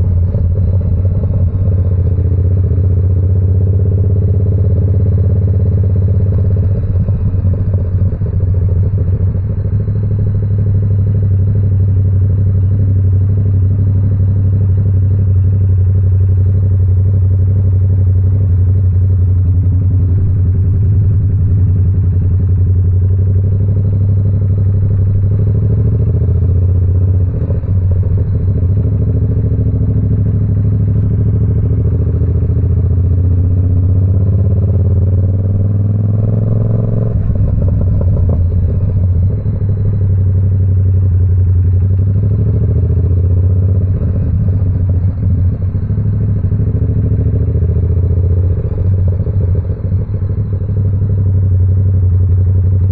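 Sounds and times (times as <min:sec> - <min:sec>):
motorcycle engine while riding: 0:00.0 - 0:52.9.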